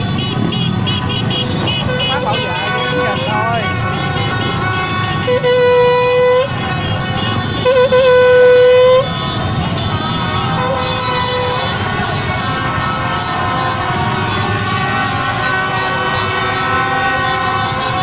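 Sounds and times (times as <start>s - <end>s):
loud horn blasts: 0.0s - 18.0s
motorbike engines: 0.0s - 18.0s
celebrating crowd: 9.0s - 18.0s.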